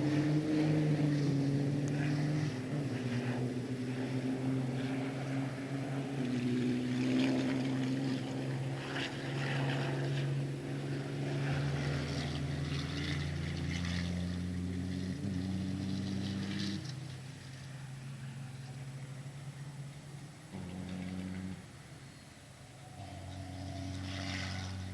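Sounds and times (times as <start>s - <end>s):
racing truck engines droning: 0.0s - 24.9s.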